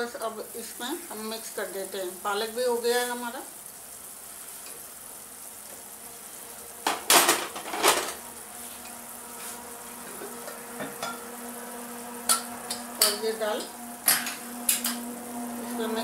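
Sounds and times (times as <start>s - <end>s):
food sizzling in a pan: 0.0s - 16.0s
metal lid clattering: 6.9s - 8.2s.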